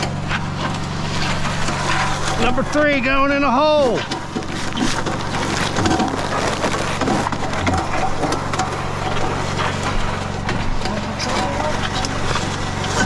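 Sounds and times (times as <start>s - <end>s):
concrete mixer motor humming: 0.0s - 13.0s
gravel tumbling in drum: 0.0s - 13.0s.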